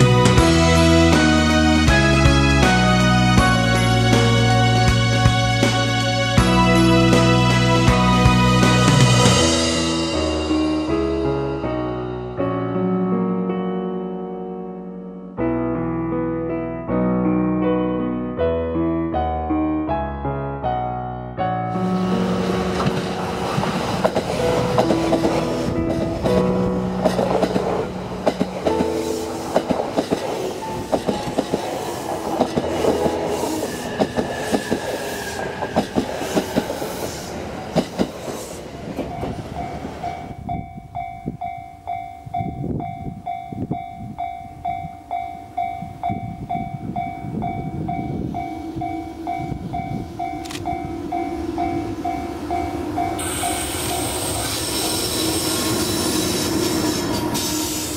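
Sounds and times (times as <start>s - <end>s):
train rushing past: 0.0s - 12.2s, 21.7s - 41.0s, 45.5s - 57.9s
train wheels clickety-clack: 22.3s - 40.1s
level crossing warning bell: 39.0s - 57.8s.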